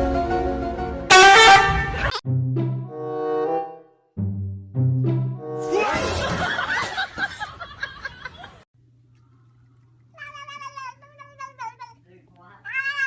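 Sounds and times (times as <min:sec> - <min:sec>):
low steady hum: 0:08.8 - 0:12.7
cat meowing: 0:10.2 - 0:12.0, 0:12.6 - 0:13.0.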